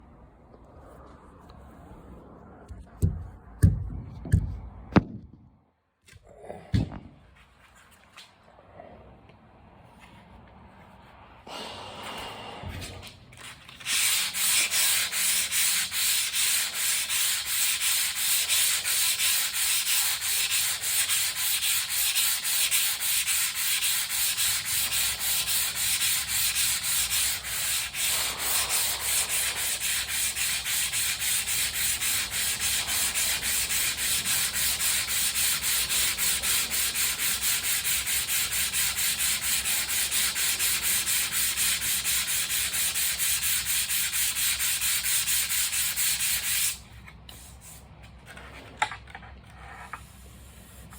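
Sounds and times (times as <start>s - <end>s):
sandpaper scratching: 13.3s - 46.8s.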